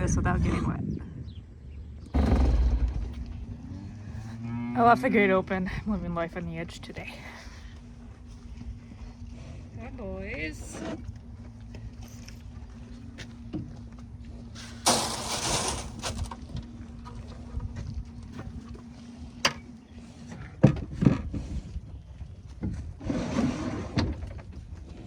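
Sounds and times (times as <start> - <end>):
steady low hum: 0.8 - 20.6
rustling and knocks: 2.2 - 4.4.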